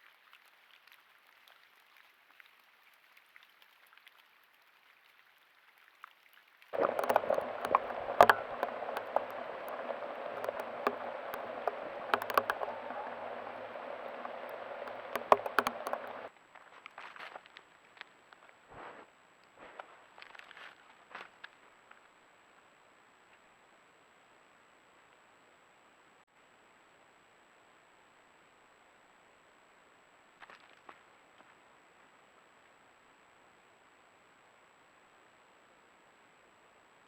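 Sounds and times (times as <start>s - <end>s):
rain pattering: 6.7s - 16.3s
sharp ticks of hits: 6.8s - 16.3s.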